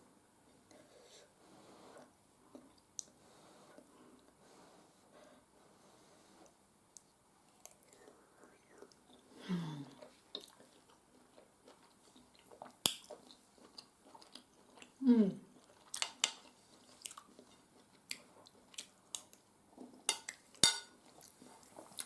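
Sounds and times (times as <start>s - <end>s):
person chewing: 7.0s - 22.0s
cutlery clinking on plate: 20.1s - 21.0s.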